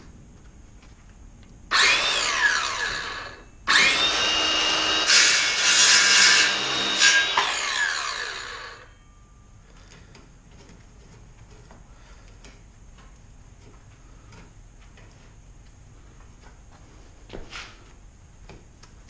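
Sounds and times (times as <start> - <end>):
circular saw cutting wood: 1.7 - 8.9
saw blade winding down: 1.7 - 8.9.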